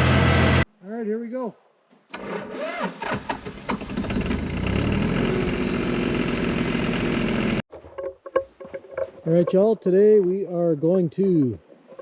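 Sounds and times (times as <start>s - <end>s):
tractor diesel engine running: 0.0s - 0.6s, 2.2s - 7.6s.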